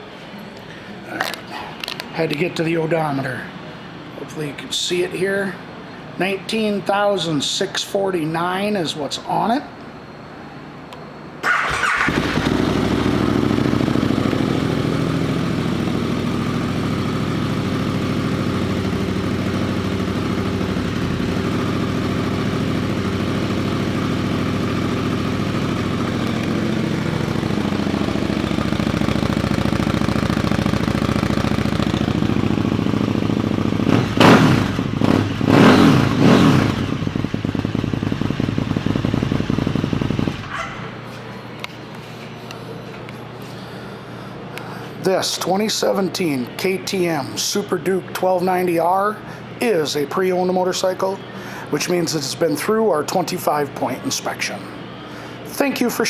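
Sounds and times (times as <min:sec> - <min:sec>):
motorcycle engine idling and revving: 0:11.4 - 0:41.0.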